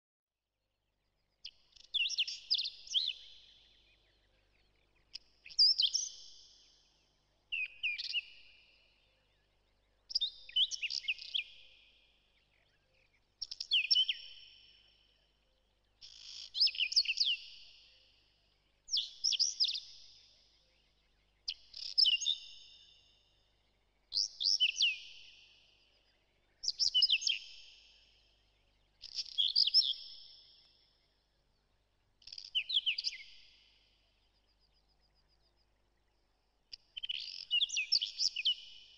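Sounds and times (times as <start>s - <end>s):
songbird chirping: 0.5s - 38.9s.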